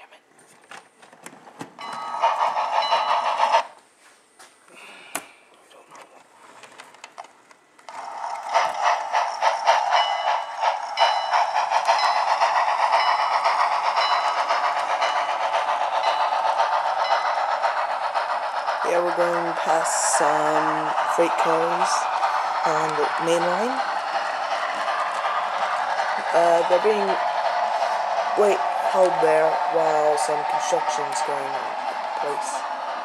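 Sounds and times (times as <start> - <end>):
model train clattering on track: 0.7 - 3.8, 6.6 - 33.0.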